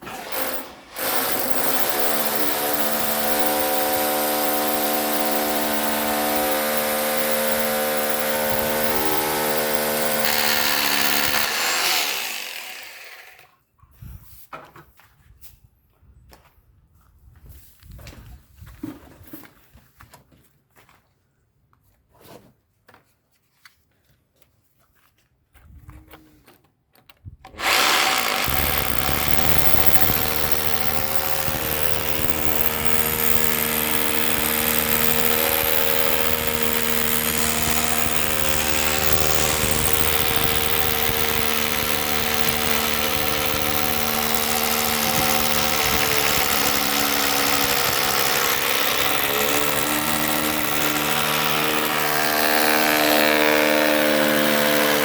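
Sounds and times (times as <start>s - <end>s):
motor running with hum: 0.2s - 13.4s, 27.6s - 55.0s.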